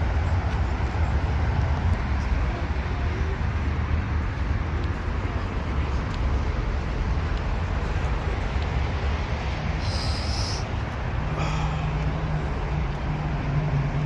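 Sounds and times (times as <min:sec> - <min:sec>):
vehicle rumble: 0:00.0 - 0:14.0
high hiss: 0:09.8 - 0:10.7.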